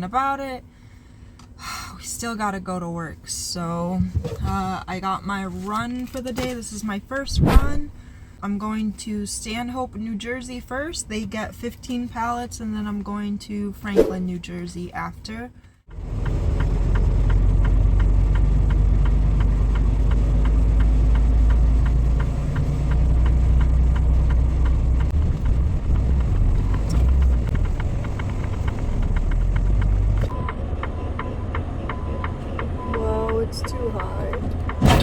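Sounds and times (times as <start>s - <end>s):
diesel truck engine running: 15.9s - 35.0s.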